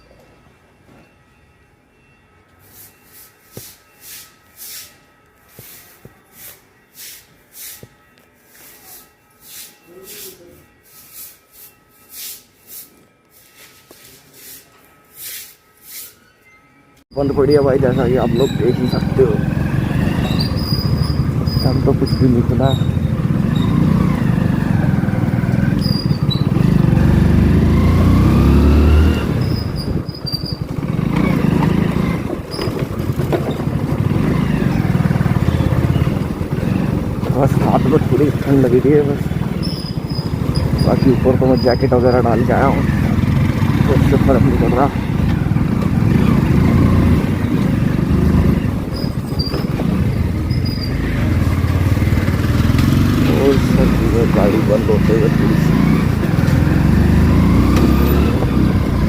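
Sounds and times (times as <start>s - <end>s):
motorcycle engine accelerating: 17.2s - 59.0s.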